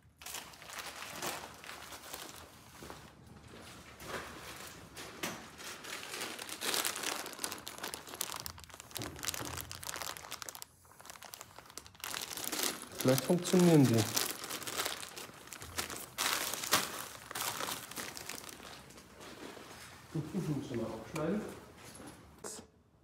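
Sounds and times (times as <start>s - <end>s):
hands rummaging through plastic fasteners: 4.5s - 19.0s.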